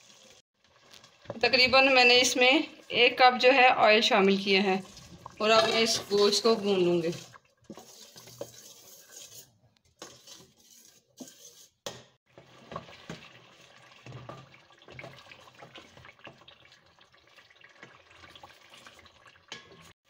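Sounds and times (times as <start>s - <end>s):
food frying in a pot: 0.0s - 20.0s
wooden spoon scraping a pot: 4.8s - 16.8s.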